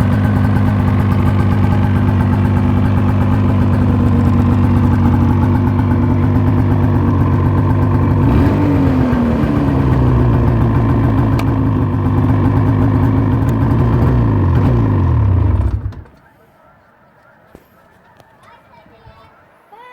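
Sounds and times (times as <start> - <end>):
snowmobile engine idling: 0.0 - 16.5.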